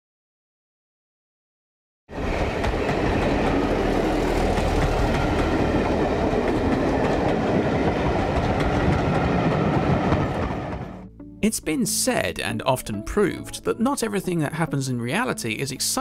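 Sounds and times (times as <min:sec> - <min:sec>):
train wheels rumbling: 0:02.1 - 0:11.0.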